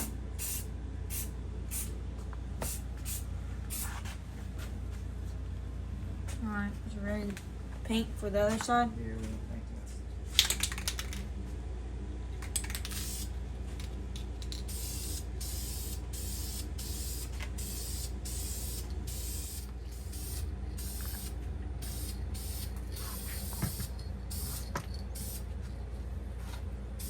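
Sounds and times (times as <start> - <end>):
spray paint hissing: 0.0 - 1.9, 2.6 - 4.1, 12.6 - 13.3, 14.5 - 25.5
steady low hum: 0.0 - 27.0.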